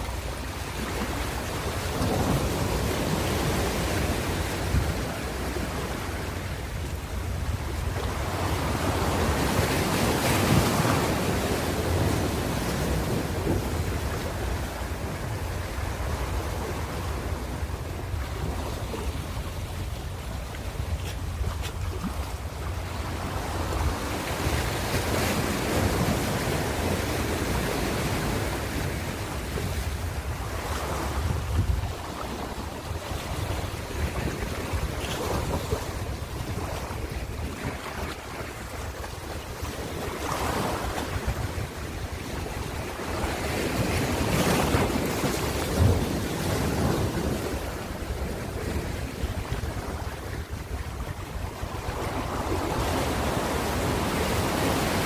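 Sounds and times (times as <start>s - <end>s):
ocean waves on shore: 0.0s - 55.0s
wind on microphone: 0.0s - 55.0s.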